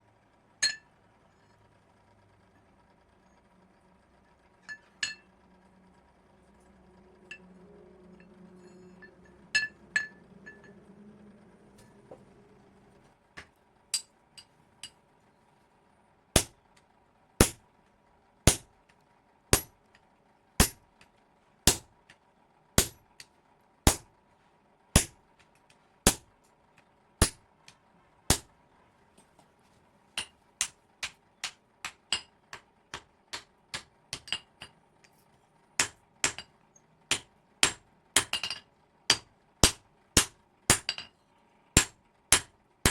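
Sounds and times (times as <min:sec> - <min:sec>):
hammer striking metal on anvil: 0:00.6 - 0:00.8, 0:08.2 - 0:10.8, 0:16.4 - 0:16.6, 0:17.4 - 0:17.6, 0:18.5 - 0:18.7, 0:19.5 - 0:19.8, 0:20.6 - 0:20.8, 0:21.7 - 0:21.9, 0:22.8 - 0:23.0, 0:23.9 - 0:24.1, 0:25.0 - 0:25.2, 0:26.1 - 0:26.3, 0:27.2 - 0:27.4, 0:30.2 - 0:34.7, 0:35.8 - 0:36.5, 0:37.1 - 0:41.1, 0:41.8 - 0:42.9.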